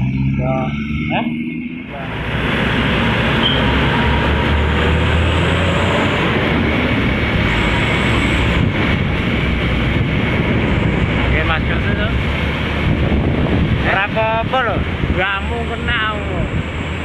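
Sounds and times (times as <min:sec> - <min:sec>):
low engine rumble: 0:00.0 - 0:17.0
road and wind noise: 0:00.0 - 0:17.0.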